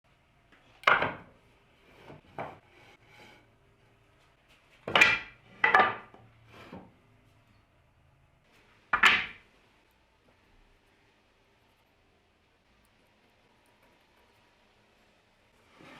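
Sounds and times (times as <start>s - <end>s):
wooden knocks and clacks: 0.8s - 1.3s, 4.8s - 6.8s, 9.0s - 9.4s.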